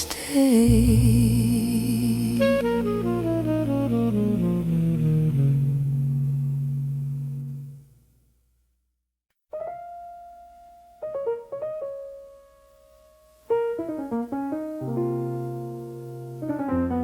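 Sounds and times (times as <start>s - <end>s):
solo piano: 9.5s - 17.0s.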